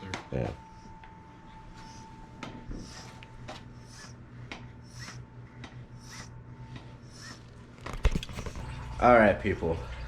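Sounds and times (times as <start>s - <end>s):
rhythmic rasping sucking noise: 0.6s - 7.6s.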